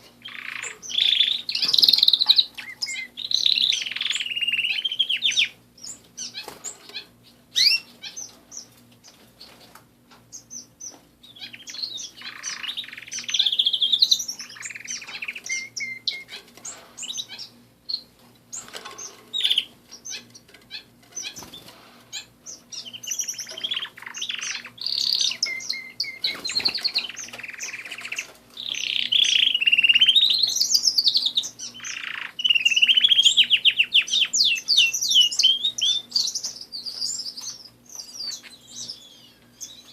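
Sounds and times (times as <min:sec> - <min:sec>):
canaries singing: 0:00.0 - 0:39.9.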